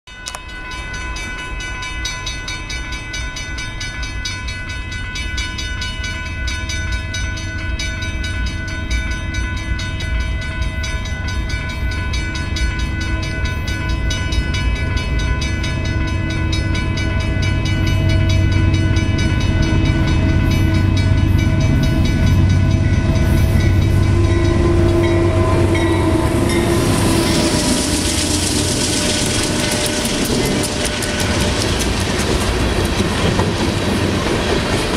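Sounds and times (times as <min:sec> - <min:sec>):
wheels rushing on rails: 0:00.2 - 0:34.9
locomotive engine rumble: 0:15.6 - 0:34.9
train horn: 0:18.3 - 0:31.4.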